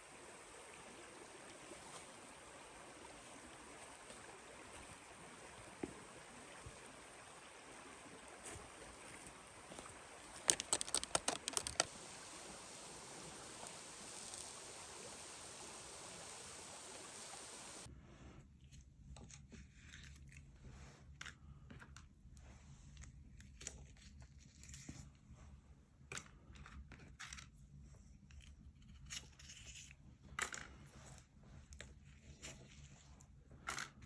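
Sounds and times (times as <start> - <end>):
steady low hiss: 10.3 - 17.9
run of sharp clicks: 10.4 - 11.9.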